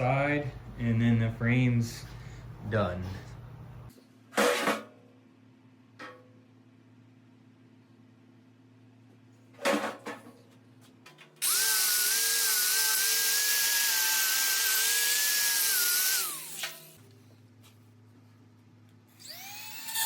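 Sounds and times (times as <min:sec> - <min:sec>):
handheld grinder whining: 0:11.4 - 0:17.0, 0:19.2 - 0:20.0.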